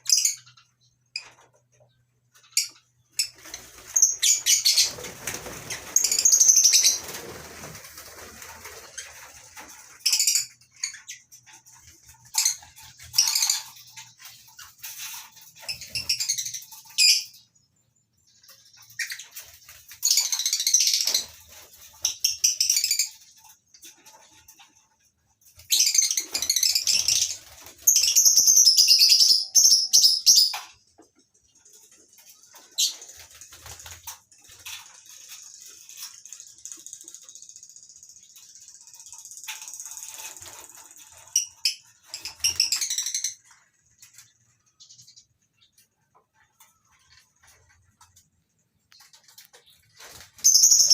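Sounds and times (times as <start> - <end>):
lovebirds chattering shrilly: 2.4 - 7.3.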